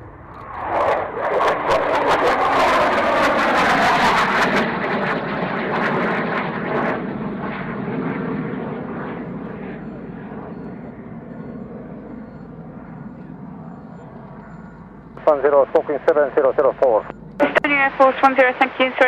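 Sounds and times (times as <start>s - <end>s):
aircraft engine: 0.0s - 19.0s.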